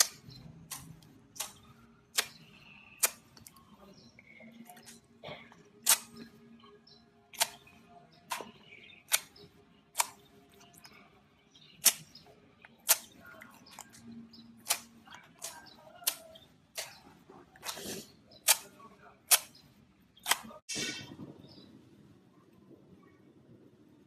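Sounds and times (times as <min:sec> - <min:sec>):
slime squishing with crisp pops: 0:11.8 - 0:14.0.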